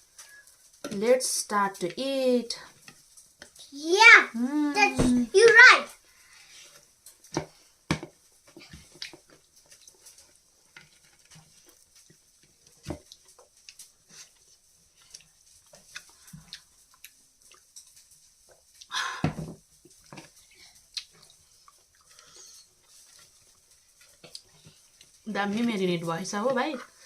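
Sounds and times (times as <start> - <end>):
chewing and lip smacks: 15.0 - 18.9, 20.8 - 22.9.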